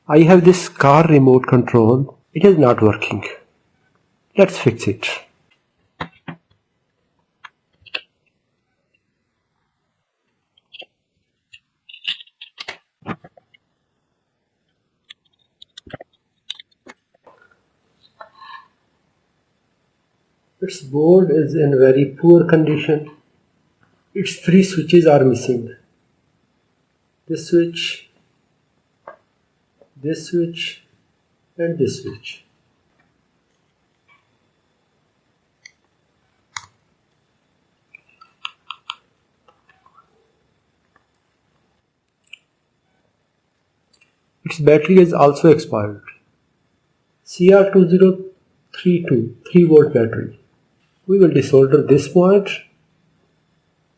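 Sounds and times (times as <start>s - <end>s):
small hard objects clicking: 11.5s - 12.8s.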